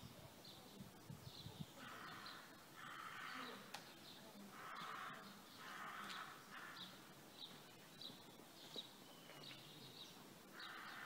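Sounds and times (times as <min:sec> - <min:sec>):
small bird chirping: 0:00.0 - 0:11.0
crow cawing: 0:01.8 - 0:03.7, 0:04.5 - 0:07.1, 0:10.5 - 0:11.0.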